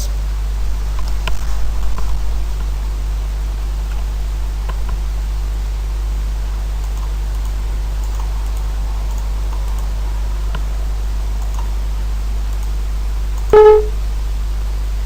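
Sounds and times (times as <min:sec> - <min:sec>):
low electrical hum: 0:00.0 - 0:15.0
faint clicks: 0:06.8 - 0:09.9
computer alert tone: 0:13.6 - 0:14.0.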